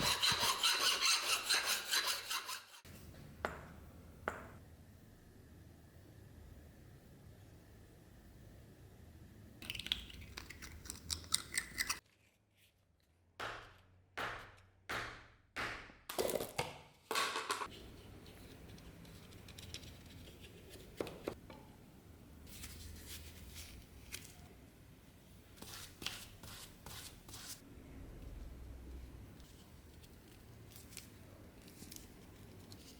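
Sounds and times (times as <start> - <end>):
hand tool rasping strokes: 0.0 - 2.8.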